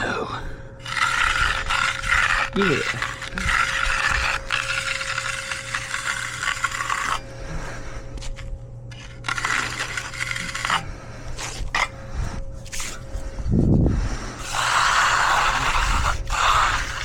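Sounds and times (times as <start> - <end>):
tool scraping fresh concrete: 0.8 - 13.3, 14.2 - 17.0.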